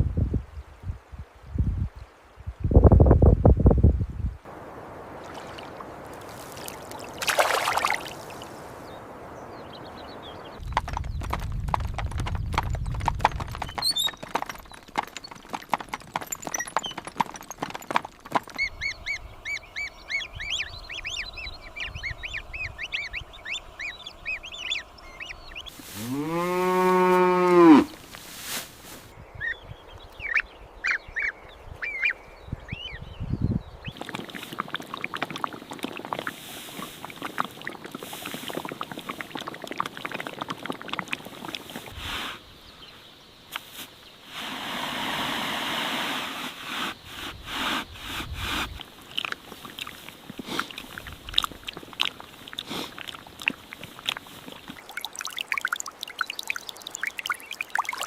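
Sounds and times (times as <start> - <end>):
knocks and clopping: 10.6 - 18.8
rough rustle: 25.7 - 29.2, 43.5 - 54.8
cow mooing: 26.0 - 28.0.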